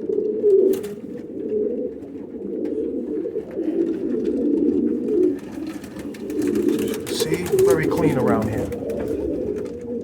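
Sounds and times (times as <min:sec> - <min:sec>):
pigeons cooing: 0:00.0 - 0:10.0.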